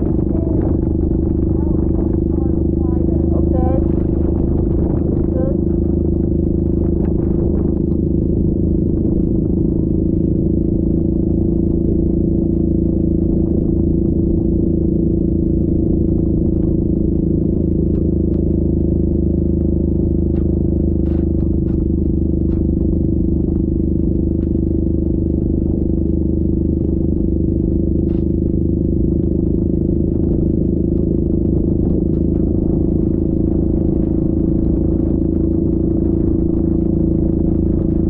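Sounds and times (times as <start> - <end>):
atv engine running: 0.0 - 38.0.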